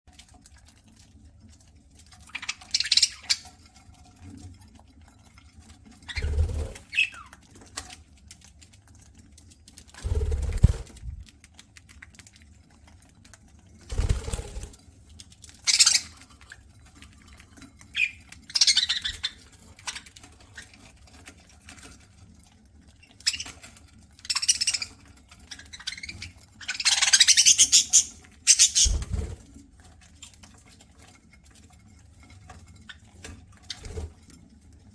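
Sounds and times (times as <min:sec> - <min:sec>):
birds pecking and cracking seeds: 0:00.1 - 0:34.9.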